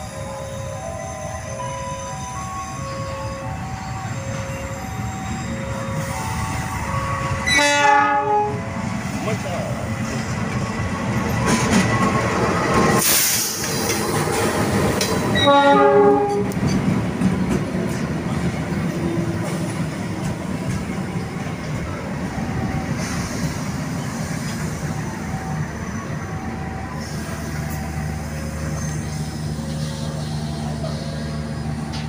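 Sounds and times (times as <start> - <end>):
train rumbling over rails: 0.0 - 32.0
train horn blast: 7.4 - 8.6, 15.3 - 16.6.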